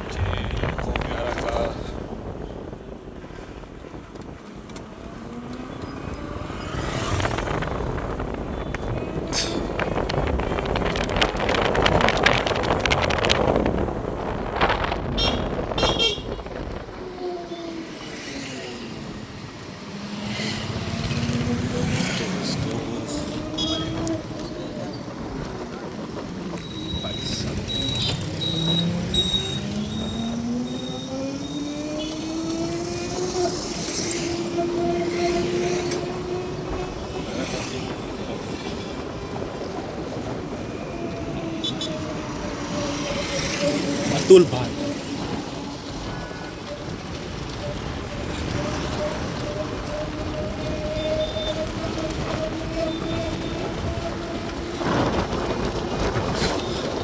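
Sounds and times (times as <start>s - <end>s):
road traffic noise: 0.0s - 57.0s
vehicle horn honks: 15.2s - 16.4s, 23.5s - 24.2s.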